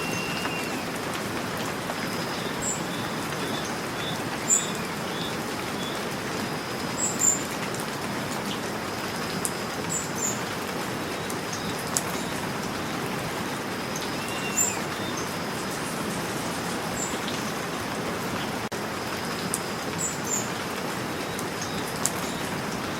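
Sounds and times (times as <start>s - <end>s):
steady rain falling: 0.0s - 22.9s
high bird chirps: 14.0s - 15.8s.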